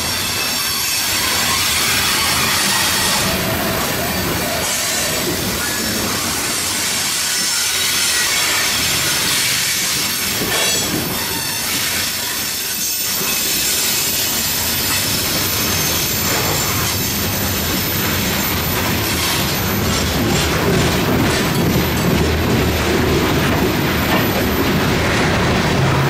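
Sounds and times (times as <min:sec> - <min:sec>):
freight train rumble: 0:00.0 - 0:26.0
steel wheels squealing on rails: 0:00.0 - 0:26.0.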